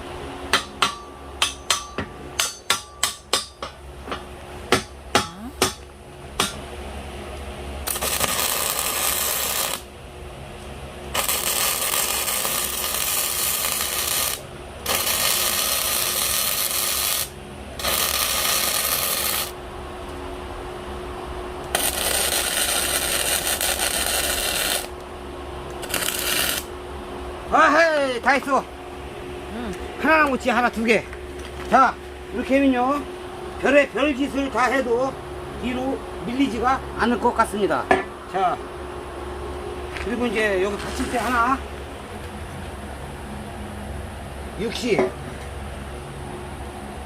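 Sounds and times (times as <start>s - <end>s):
electric arc welding: 7.8s - 9.9s, 11.1s - 19.6s, 21.7s - 25.0s, 25.8s - 26.7s.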